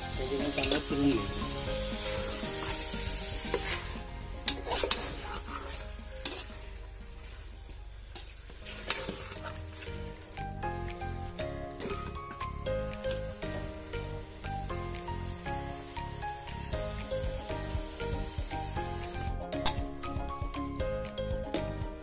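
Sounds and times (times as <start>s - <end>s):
chicken sizzling in oil: 0.0s - 11.4s, 12.3s - 19.4s
ladle scraping metal pot: 3.4s - 6.6s, 8.6s - 10.0s.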